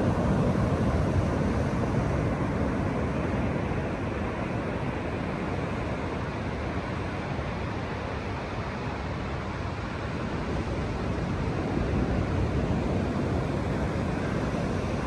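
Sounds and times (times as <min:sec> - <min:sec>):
ocean surf on a beach: 0:00.0 - 0:15.0
wind on the microphone: 0:00.0 - 0:15.0.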